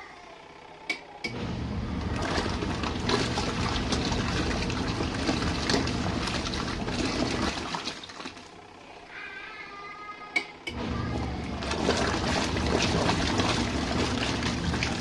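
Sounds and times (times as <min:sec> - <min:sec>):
washing machine motor humming: 0:00.0 - 0:15.0
water churning in tub: 0:01.3 - 0:08.7, 0:10.7 - 0:15.0.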